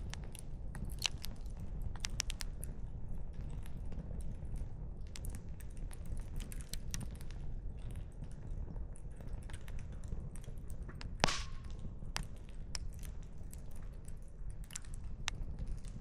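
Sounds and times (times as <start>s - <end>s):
campfire crackling and popping: 11.2s - 11.9s.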